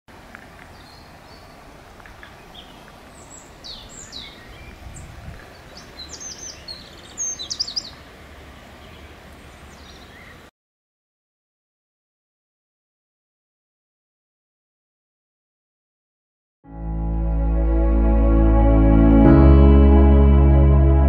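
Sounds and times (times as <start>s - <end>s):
small birds chirping: 0.4s - 10.5s.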